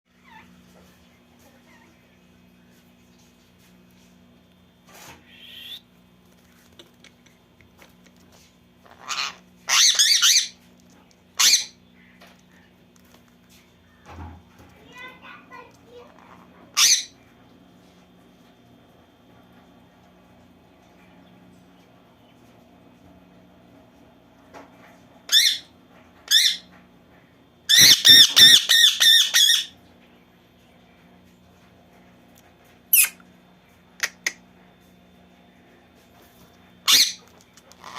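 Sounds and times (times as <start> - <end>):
parrots squawking and screeching: 5.2 - 5.8, 8.8 - 10.6, 11.4 - 11.8, 16.2 - 17.1, 25.3 - 25.7, 26.3 - 26.7, 27.7 - 29.7, 36.8 - 37.9.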